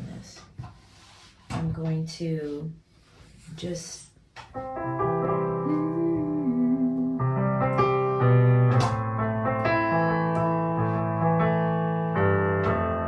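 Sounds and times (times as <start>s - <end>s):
piano playing sustained chords: 4.6s - 13.0s.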